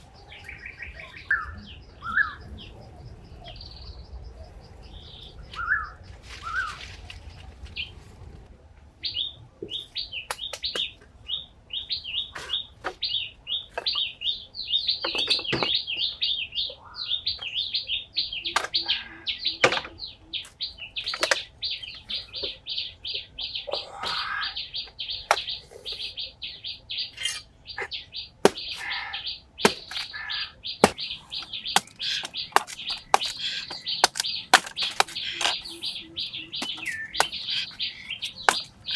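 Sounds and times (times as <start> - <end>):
small birds chirping: 30.9 - 38.9
sharp clicks and knocks: 31.2 - 38.9.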